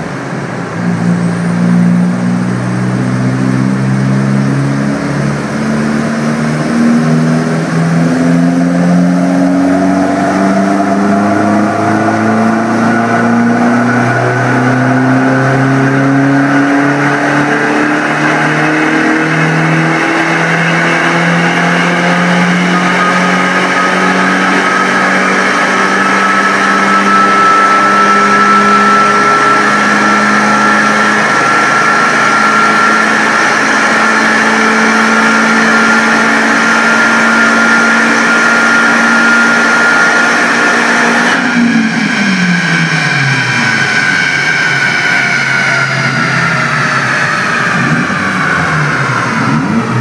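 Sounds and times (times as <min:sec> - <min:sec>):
car engine revving on dynamometer: 0:00.0 - 0:50.0
turbo whine: 0:00.0 - 0:50.0.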